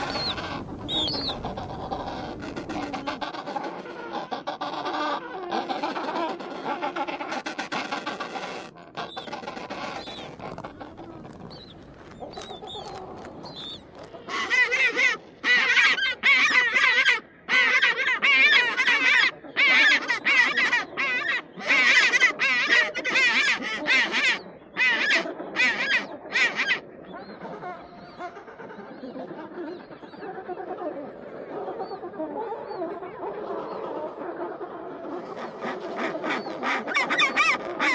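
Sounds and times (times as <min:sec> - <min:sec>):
penguins honking calls: 0:00.0 - 0:03.4.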